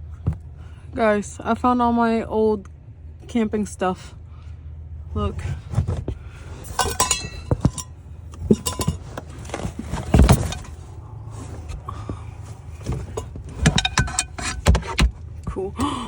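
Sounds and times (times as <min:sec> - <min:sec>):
camping gear clinking and knocking: 0:05.7 - 0:15.4
heavy thump: 0:05.8 - 0:10.8.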